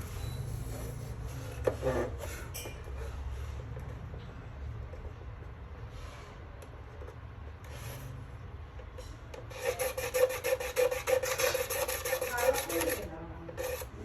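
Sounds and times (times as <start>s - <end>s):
rapid scraping: 9.5s - 14.0s.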